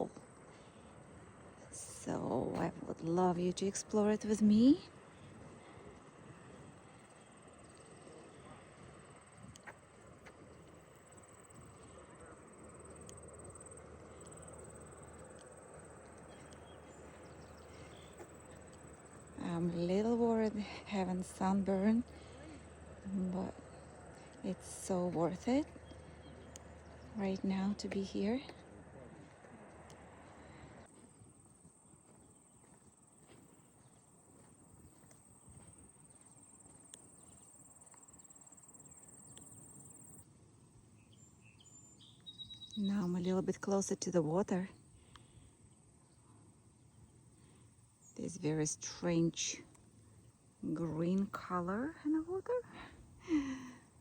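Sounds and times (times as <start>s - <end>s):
soft footsteps on a path: 0.0s - 39.6s
outdoor background hush: 0.0s - 54.0s
insects trilling: 31.2s - 54.0s.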